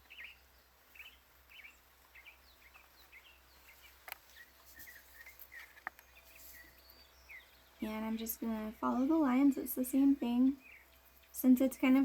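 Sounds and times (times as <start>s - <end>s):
small bird chirping: 0.0s - 12.0s.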